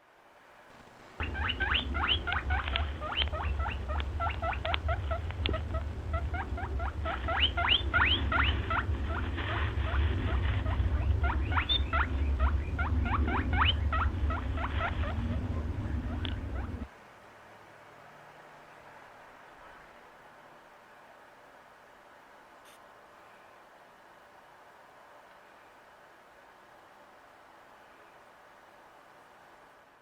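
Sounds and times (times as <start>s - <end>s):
low hum: 0.7s - 16.9s
small animals squeaking: 1.2s - 16.9s.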